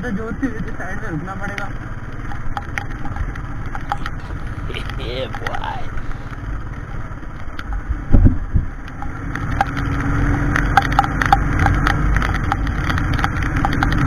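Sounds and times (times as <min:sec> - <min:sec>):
sharp ticks: 0:01.5 - 0:06.8, 0:08.8 - 0:14.0
wind noise on microphone: 0:07.8 - 0:14.0.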